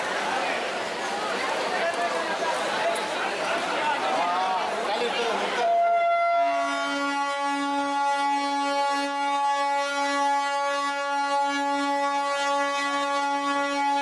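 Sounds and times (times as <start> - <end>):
train horn: 5.6 - 14.0.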